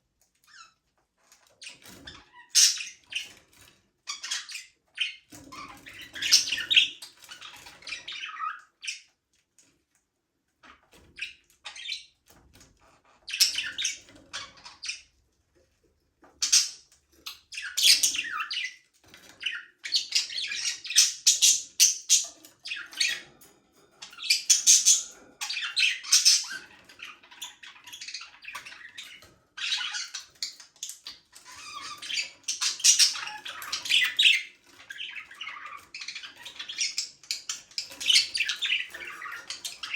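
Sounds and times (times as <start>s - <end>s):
budgerigars chirping: 2.1s - 3.4s, 4.1s - 9.1s, 13.3s - 15.0s, 16.4s - 18.8s, 19.4s - 23.3s, 24.0s - 39.9s.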